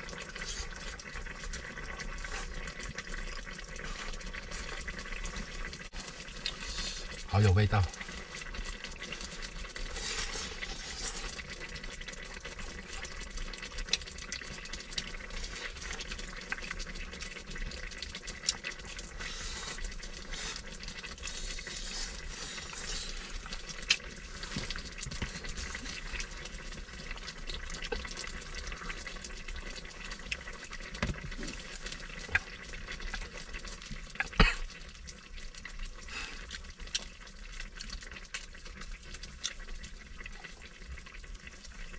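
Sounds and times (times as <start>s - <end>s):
food sizzling: 0.0s - 41.9s
light crackles and clicks: 13.0s - 19.9s, 22.6s - 41.9s.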